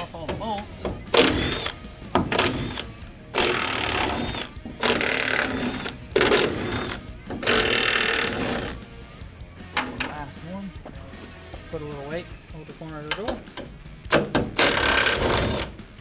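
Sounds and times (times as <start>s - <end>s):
impact wrench running: 0.0s - 8.9s, 9.7s - 10.4s, 13.1s - 16.0s.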